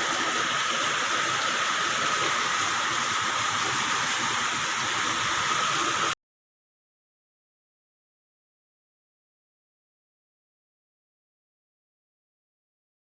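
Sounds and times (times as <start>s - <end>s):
heavy rain pouring: 0.0s - 6.2s.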